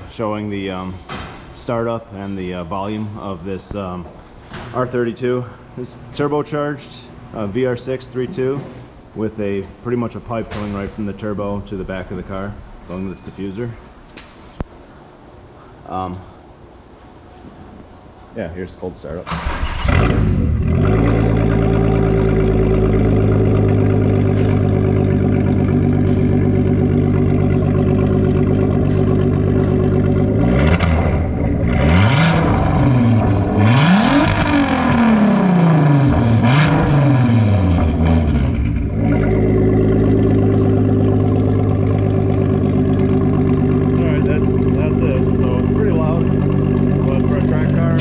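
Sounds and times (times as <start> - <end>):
car engine idling and revving: 19.6 - 48.0.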